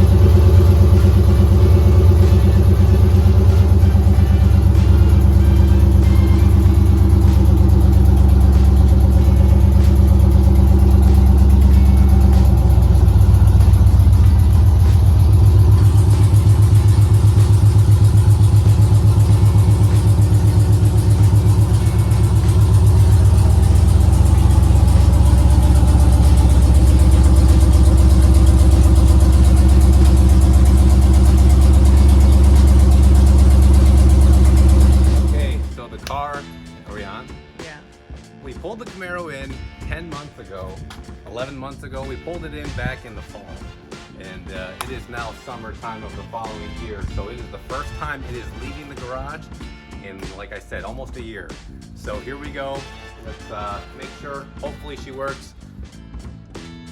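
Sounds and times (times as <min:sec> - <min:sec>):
loud car engine idling: 0:00.0 - 0:36.8.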